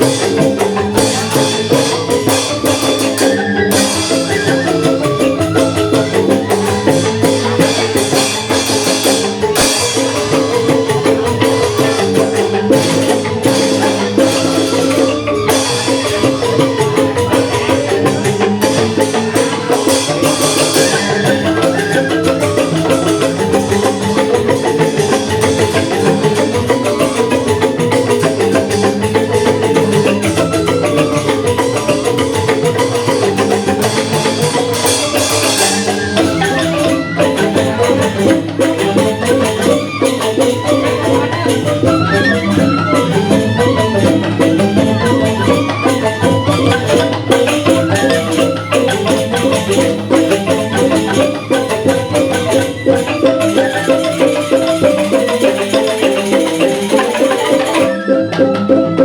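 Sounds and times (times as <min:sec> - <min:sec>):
bamboo xylophones struck with mallets: 0:00.0 - 0:59.0
percussion: 0:00.0 - 0:59.0.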